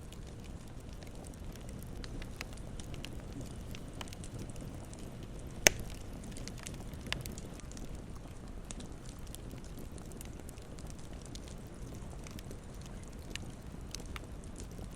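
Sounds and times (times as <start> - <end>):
campfire rumbling: 0.0 - 14.9
fire crackles: 0.0 - 14.9
sharp fire pops: 5.6 - 7.4.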